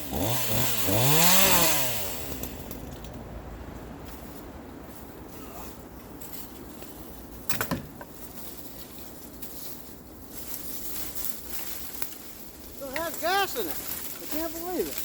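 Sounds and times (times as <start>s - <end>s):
chainsaw idling: 0.0s - 2.8s.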